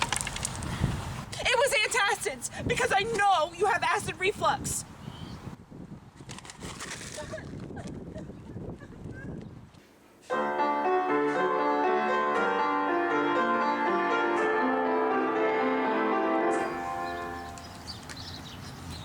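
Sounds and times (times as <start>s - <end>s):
piano music: 10.3s - 17.8s.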